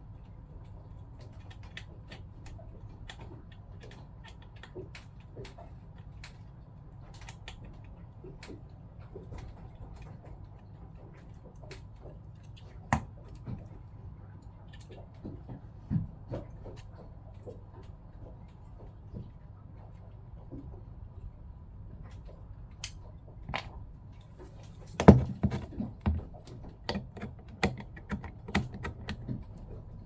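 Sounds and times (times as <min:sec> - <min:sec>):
tools and pump parts clicking: 0:25.0 - 0:29.4.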